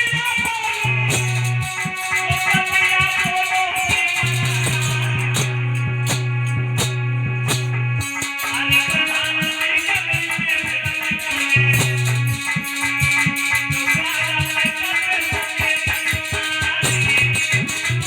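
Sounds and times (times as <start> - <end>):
drum beat: 0.0 - 18.0
plucked-string melody: 0.0 - 18.0
shaker: 8.0 - 18.0.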